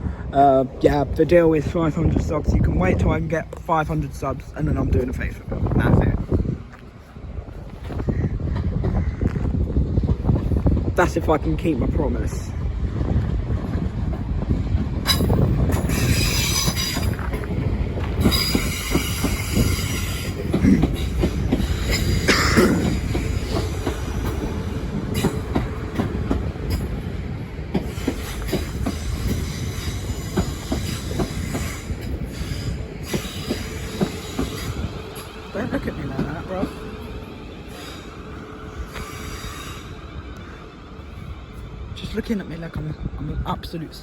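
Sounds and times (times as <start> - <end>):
train rumbling: 0.0 - 44.0
train wheels squealing on rails: 15.0 - 27.1, 27.7 - 43.7.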